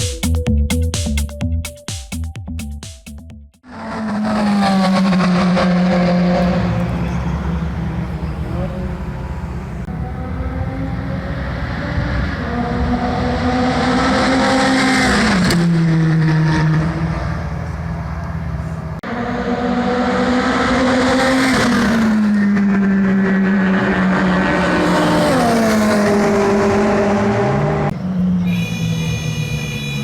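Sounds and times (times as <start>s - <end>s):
car engines revving passing by: 3.7s - 30.0s.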